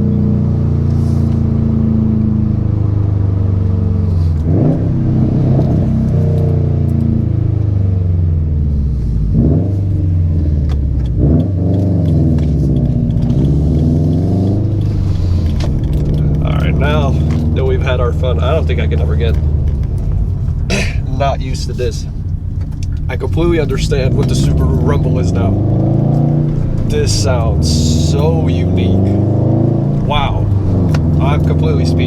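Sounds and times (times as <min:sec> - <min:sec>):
car engine exhaust rumble: 0:00.0 - 0:32.0.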